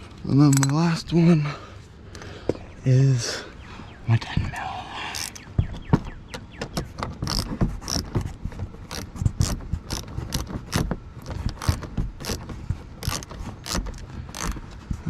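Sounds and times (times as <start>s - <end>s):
socket ratchet clicking: 5.2s - 5.5s, 7.0s - 8.1s, 8.8s - 14.6s.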